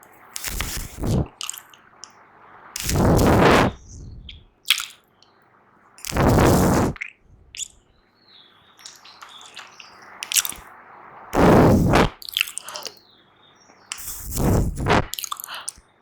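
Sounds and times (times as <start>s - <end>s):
wet mouth clicks and lip smacks: 0.2s - 1.8s, 2.8s - 5.0s, 6.0s - 7.8s, 8.8s - 10.7s, 11.9s - 13.0s, 13.9s - 15.8s
breathy puffs of air: 6.1s - 7.0s, 11.4s - 12.9s, 14.0s - 15.8s.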